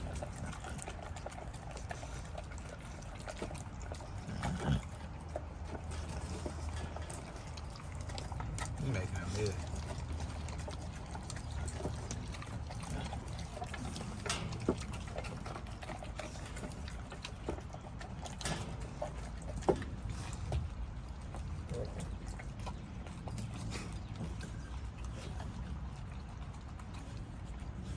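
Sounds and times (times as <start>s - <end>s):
dog chewing and licking: 0.0s - 27.9s.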